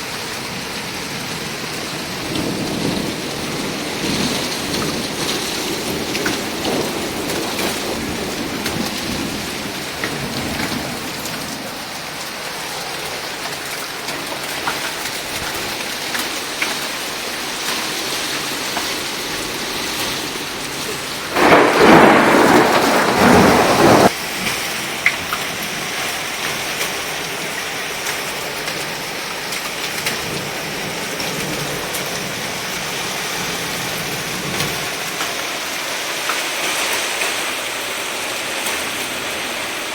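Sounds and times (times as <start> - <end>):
heavy rain splashing: 0.0 - 39.9
loud burst of noise: 21.3 - 24.2.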